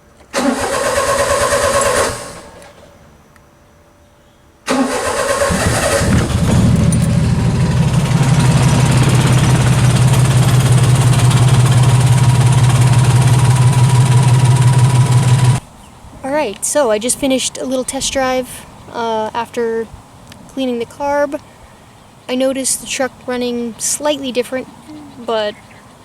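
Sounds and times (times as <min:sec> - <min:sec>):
truck engine starting and idling: 0:00.3 - 0:02.8, 0:04.7 - 0:15.6.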